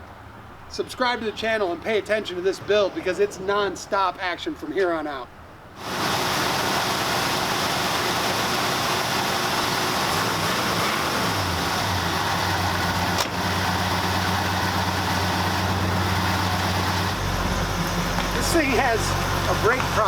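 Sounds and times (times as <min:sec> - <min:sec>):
truck engine idling: 0:05.8 - 0:20.0.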